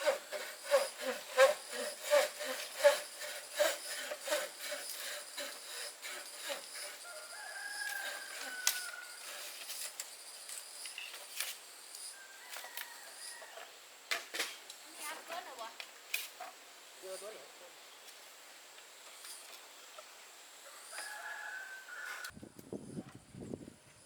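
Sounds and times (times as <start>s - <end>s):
rooster crowing: 7.0s - 9.4s, 12.2s - 13.7s, 20.6s - 22.4s.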